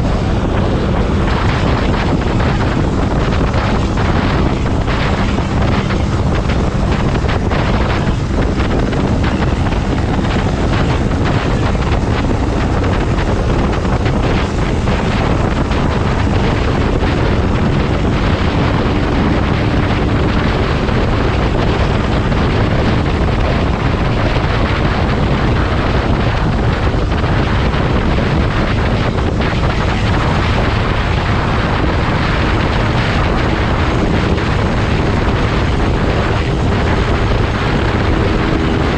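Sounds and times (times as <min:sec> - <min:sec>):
motorcycle engine cruising: 0:00.0 - 0:38.9
wind buffeting microphone: 0:00.0 - 0:38.9.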